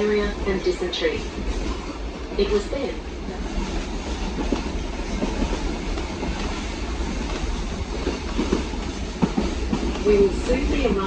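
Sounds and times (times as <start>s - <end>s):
train rumbling: 0.0s - 11.0s
train wheels clicking: 3.4s - 11.0s.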